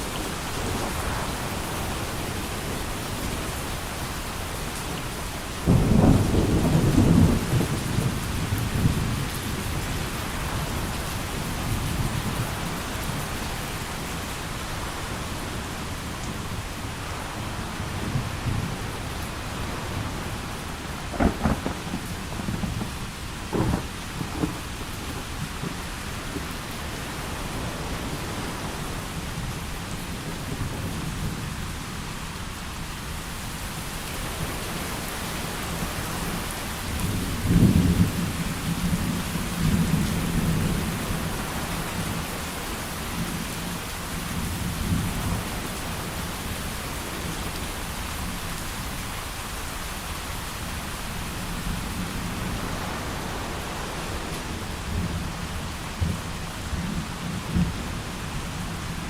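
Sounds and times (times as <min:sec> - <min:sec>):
heavy rain: 0:00.0 - 0:59.0
rolling thunder: 0:05.6 - 0:13.2, 0:19.7 - 0:29.5.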